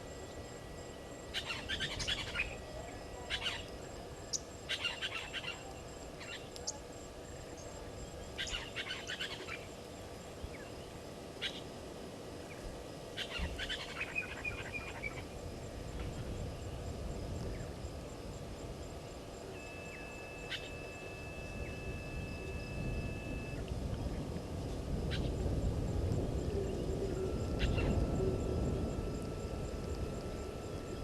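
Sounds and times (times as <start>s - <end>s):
birds chirping: 0.0s - 11.8s, 12.4s - 25.4s, 26.1s - 31.0s
insects ticking: 0.0s - 31.0s
low background rumble: 0.0s - 31.0s
high whistle-like tone: 19.5s - 23.7s.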